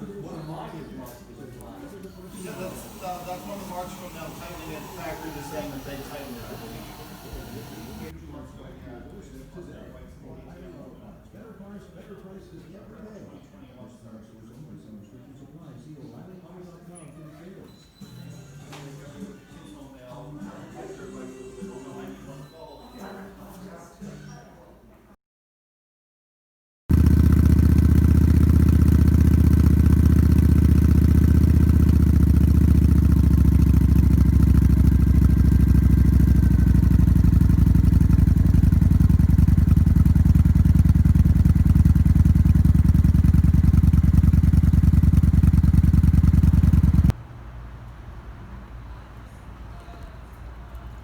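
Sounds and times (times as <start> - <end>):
motorcycle engine idling: 2.3 - 8.2, 26.9 - 47.2.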